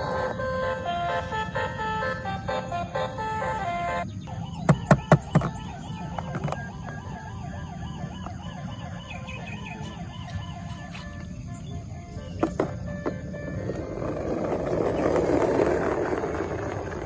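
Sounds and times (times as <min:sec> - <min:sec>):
music: 0:00.0 - 0:04.0
electronic siren warbling: 0:00.0 - 0:15.6.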